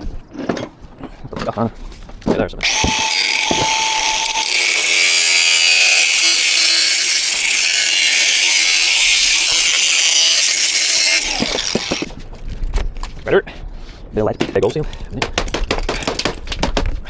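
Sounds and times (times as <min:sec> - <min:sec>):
angle grinder cutting pipe: 0:02.6 - 0:12.1.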